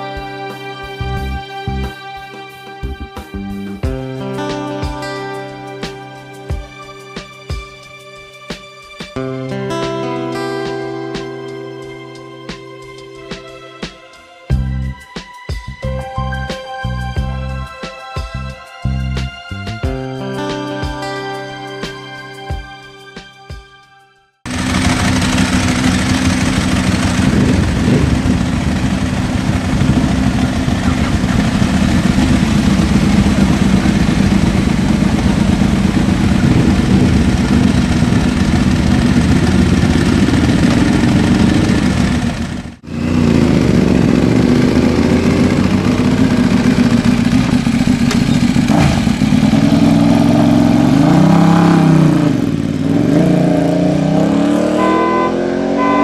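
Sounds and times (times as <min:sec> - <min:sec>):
motorcycle engines revving: 0:24.5 - 0:56.0
short steady tone: 0:54.7 - 0:56.0.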